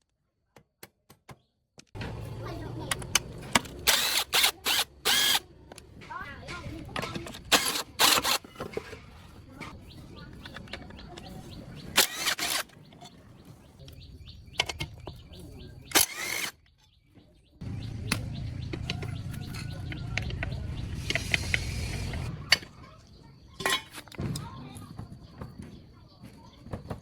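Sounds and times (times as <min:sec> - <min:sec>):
tools knocking and clattering: 0:05.7 - 0:13.2, 0:14.5 - 0:15.4, 0:23.6 - 0:25.6.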